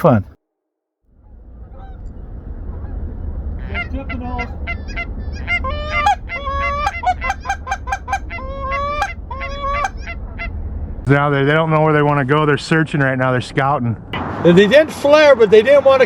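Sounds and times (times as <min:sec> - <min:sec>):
low wind rumble: 0:01.1 - 0:16.0
geese honking: 0:01.2 - 0:10.8.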